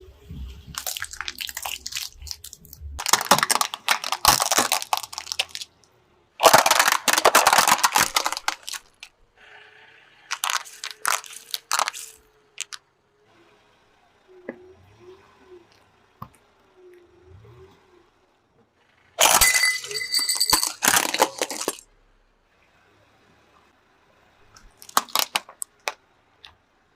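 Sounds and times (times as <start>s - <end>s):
objects crunching under car: 0.4s - 5.7s, 6.4s - 9.2s, 10.3s - 12.8s, 20.4s - 21.8s.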